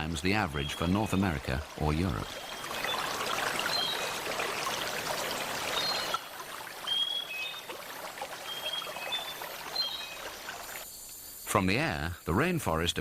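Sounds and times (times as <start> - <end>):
stream running water: 0.0 - 10.8
high whistled calls: 2.2 - 4.2, 5.7 - 6.2, 6.8 - 7.7, 8.4 - 11.0.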